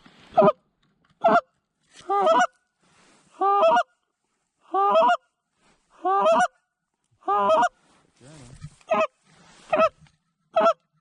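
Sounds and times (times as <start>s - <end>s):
goose honking: 2.1s - 2.6s, 6.0s - 6.5s, 8.9s - 10.8s.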